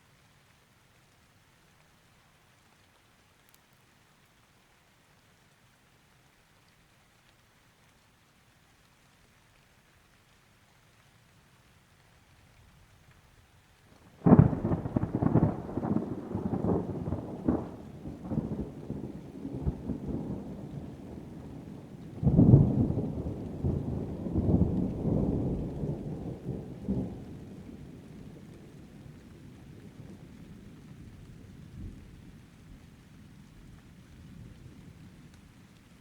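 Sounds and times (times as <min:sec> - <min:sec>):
rain: 0:00.0 - 0:36.0
thunder clap and rumble: 0:14.2 - 0:30.8.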